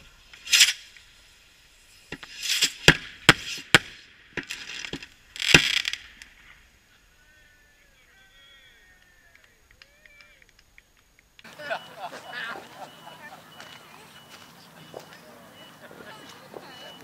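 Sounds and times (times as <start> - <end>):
fireworks cannons banging: 0.0 - 6.9
fire crackling: 0.0 - 17.0.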